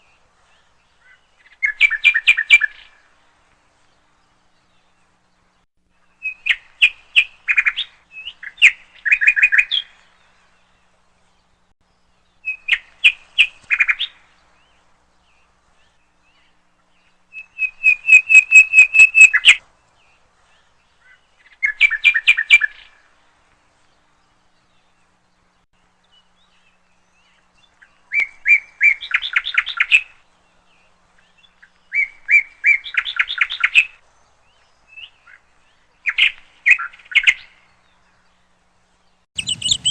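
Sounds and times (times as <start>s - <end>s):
woodpecker rattling call: 39.4s - 39.9s.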